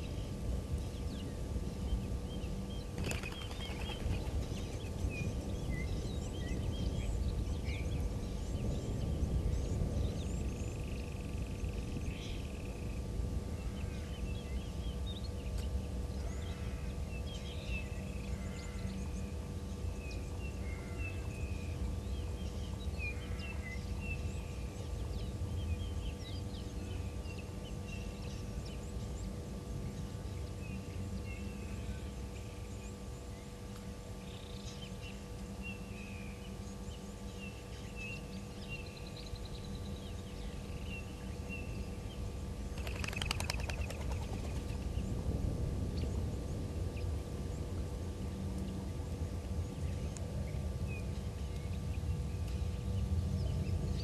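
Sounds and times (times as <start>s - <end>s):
small birds chirping: 0.0s - 12.8s, 34.3s - 45.0s
faint steady hum: 0.0s - 54.0s
steady low rumble: 38.4s - 54.0s.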